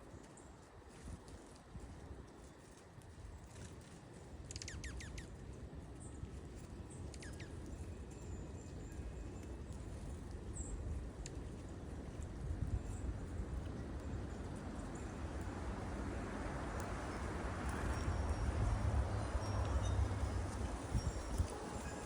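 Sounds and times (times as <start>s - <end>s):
small birds chirping: 4.5s - 5.4s, 6.0s - 7.7s.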